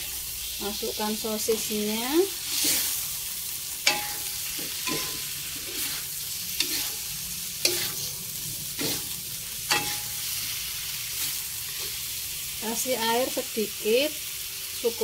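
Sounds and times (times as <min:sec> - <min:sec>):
sausages sizzling: 0:00.0 - 0:15.0
metal spatula scraping wok: 0:01.5 - 0:12.2.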